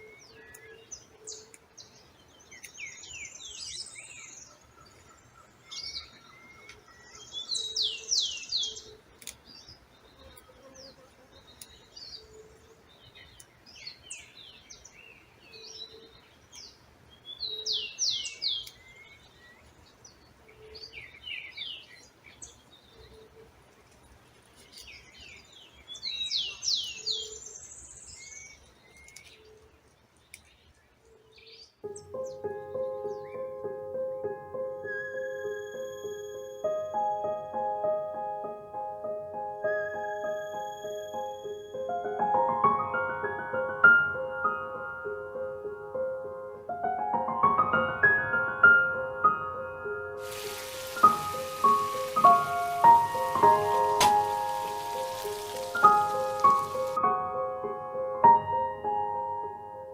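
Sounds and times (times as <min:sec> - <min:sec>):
bird chirps: 0:00.0 - 0:23.5, 0:24.6 - 0:33.6, 0:34.8 - 0:37.3, 0:39.6 - 0:42.2, 0:50.2 - 0:57.0.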